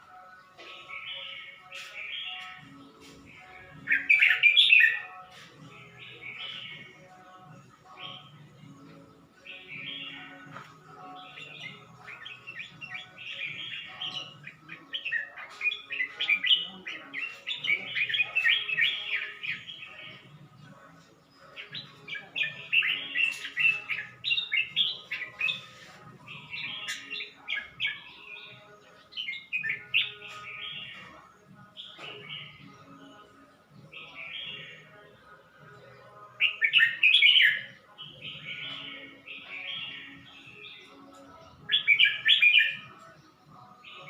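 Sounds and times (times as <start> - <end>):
bird chattering song: 0.6 - 7.0, 7.9 - 20.4, 21.0 - 33.2, 36.4 - 44.0.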